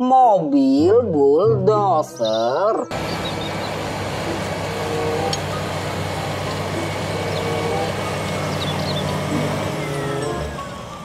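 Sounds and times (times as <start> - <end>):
bulldozer diesel engine running: 2.9 - 11.0.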